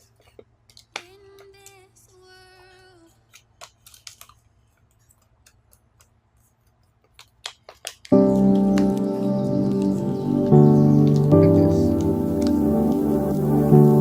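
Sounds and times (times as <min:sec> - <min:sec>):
paper crackling as it is folded: 0:02.9 - 0:14.0.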